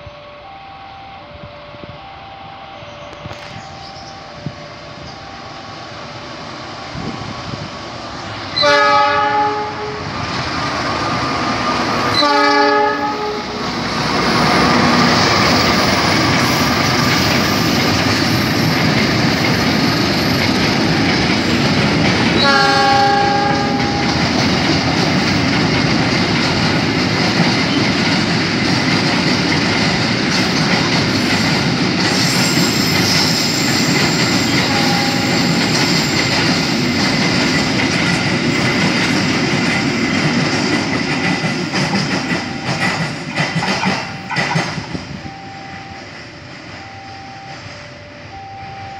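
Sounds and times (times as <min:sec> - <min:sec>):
train rolling noise: 0:00.0 - 0:48.9
locomotive horn blasts: 0:08.5 - 0:10.2, 0:12.1 - 0:15.2, 0:22.4 - 0:24.2, 0:34.5 - 0:35.6
wagons clattering over rail joints: 0:14.4 - 0:45.2.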